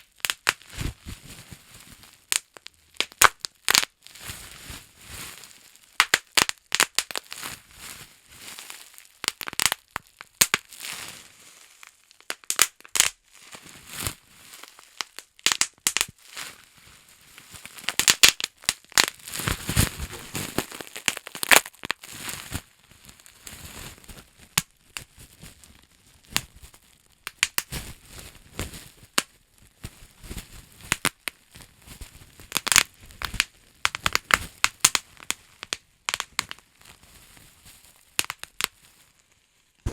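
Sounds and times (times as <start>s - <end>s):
bubble wrap popping: 0.0s - 1.5s, 2.2s - 4.0s, 6.0s - 7.4s, 8.8s - 10.8s, 11.8s - 13.2s, 14.6s - 16.2s, 17.6s - 22.7s, 23.3s - 37.0s, 38.0s - 38.8s.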